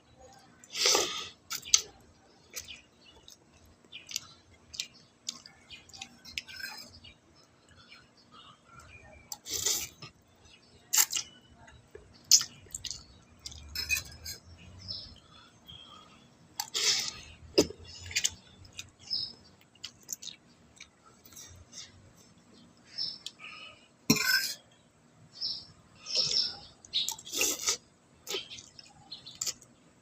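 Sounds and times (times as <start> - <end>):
chewing and mouth noises: 0.3 - 7.8, 10.9 - 14.4, 16.6 - 22.4, 26.1 - 29.7
utensils clinking against dishes: 13.7 - 14.4.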